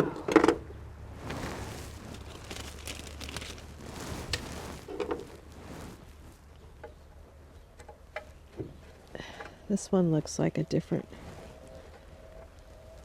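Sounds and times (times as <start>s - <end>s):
small metal parts handled: 2.1s - 5.3s.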